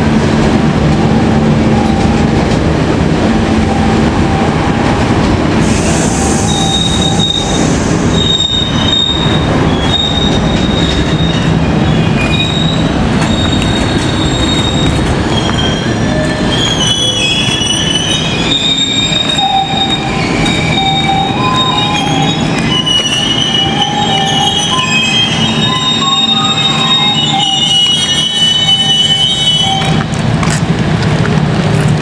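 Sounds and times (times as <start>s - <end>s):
train wheels rumbling on rails: 0.0s - 32.0s
train wheels squealing: 5.6s - 30.0s.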